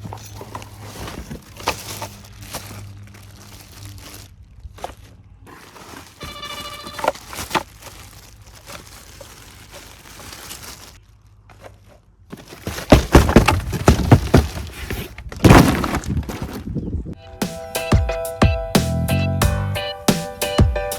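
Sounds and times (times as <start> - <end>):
packaging rustling and scraping: 0.0 - 16.9
short pitched squeak: 6.1 - 7.3.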